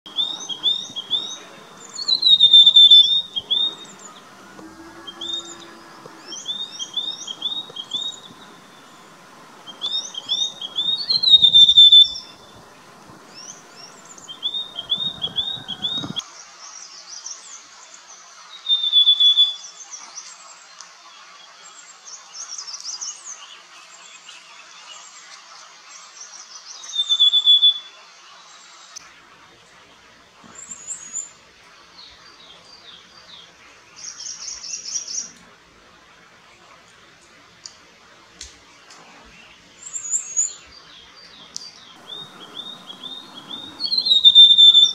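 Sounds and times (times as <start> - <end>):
bird whistling phrases: 0.1 - 16.2, 42.0 - 44.9
faint chattering bird calls: 0.1 - 16.2, 41.9 - 44.9
loud drawn-out whistles: 0.1 - 16.2, 42.0 - 44.9.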